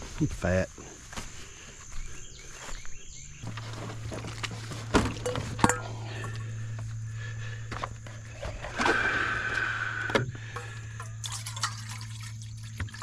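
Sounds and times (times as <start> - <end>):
camping gear being handled: 0.0 - 7.0, 7.6 - 9.7
steady low hum: 0.0 - 13.0.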